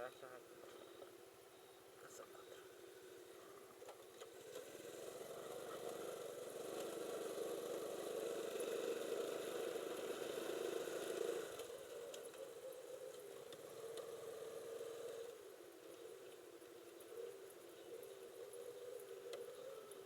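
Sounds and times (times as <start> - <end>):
small motorcycle engine running: 4.1 - 16.3.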